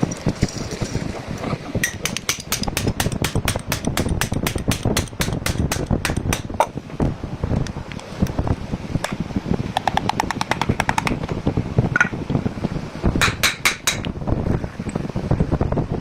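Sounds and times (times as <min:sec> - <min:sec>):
workshop rumble: 0:00.4 - 0:07.2.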